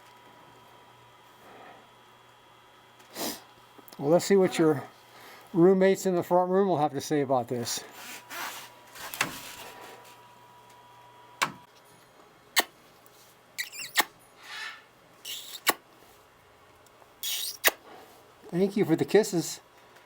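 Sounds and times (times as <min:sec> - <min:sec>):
sharp clicks and knocks: 0:11.4 - 0:11.7
parrot kissing noise: 0:12.6 - 0:12.8, 0:13.6 - 0:14.2, 0:15.3 - 0:15.8, 0:17.2 - 0:17.8
short squeaky sounds: 0:13.6 - 0:15.8, 0:17.2 - 0:17.8.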